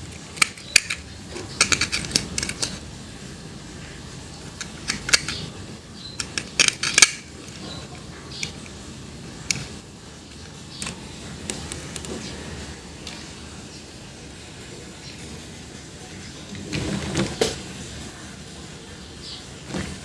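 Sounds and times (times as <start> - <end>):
plastic toys clicking and knocking: 0.0 - 2.8, 4.6 - 5.6, 6.2 - 8.8, 9.4 - 12.2.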